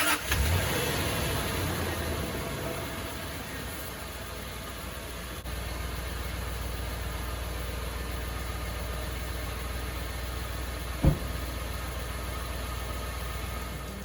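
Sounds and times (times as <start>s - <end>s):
loud thump: 11.0s - 11.6s.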